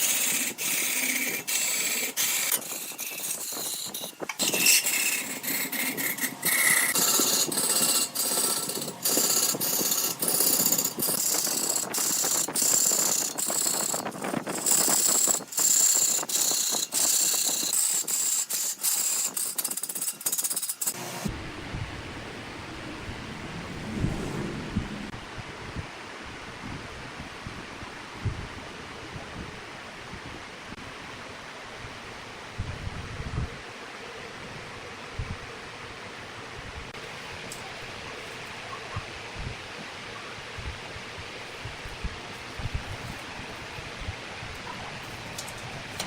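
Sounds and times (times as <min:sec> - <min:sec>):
lathe tool cutting wood: 0:00.0 - 0:21.3
low rumble: 0:21.3 - 0:25.4.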